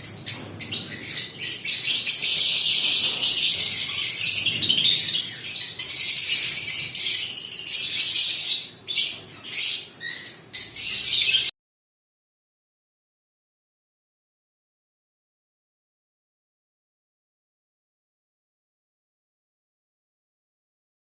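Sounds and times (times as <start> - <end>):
lovebirds chirping: 0.0 - 11.5.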